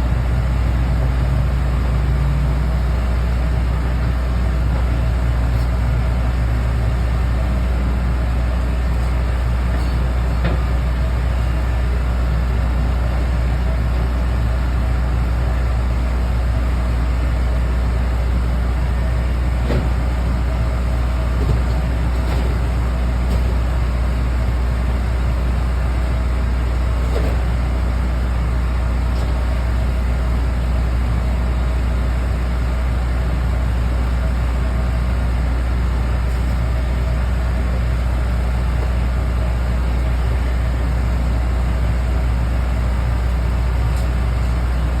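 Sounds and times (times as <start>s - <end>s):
low mechanical drone: 0.0s - 45.0s.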